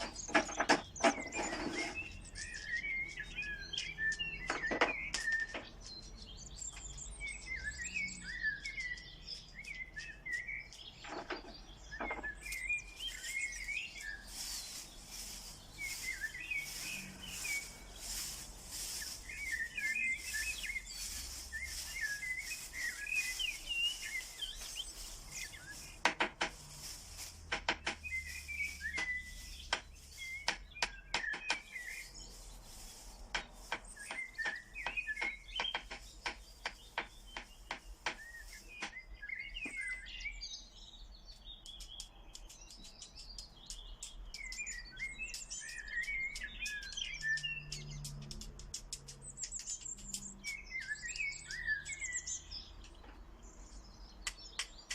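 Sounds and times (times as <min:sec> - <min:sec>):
birds chirping and warbling: 0:00.0 - 0:54.9
sharp clicks: 0:54.2 - 0:54.9.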